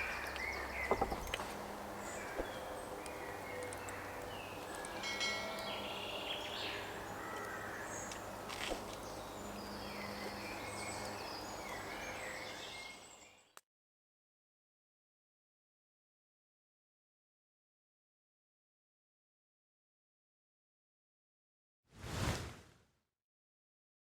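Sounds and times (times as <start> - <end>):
small birds chirping: 0.0 - 13.6.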